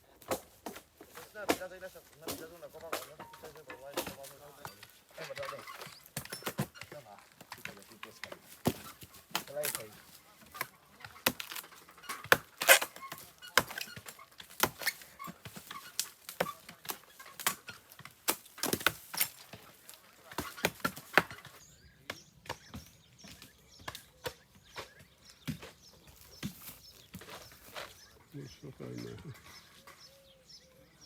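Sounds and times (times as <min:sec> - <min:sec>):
knocks and cracks of cork bark: 0:00.2 - 0:27.9.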